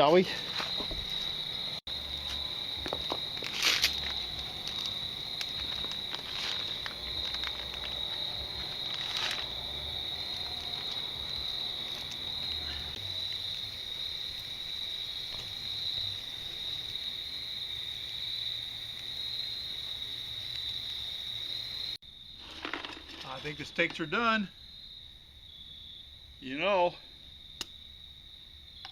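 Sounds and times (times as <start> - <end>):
insects chirring: 0.0 - 28.9.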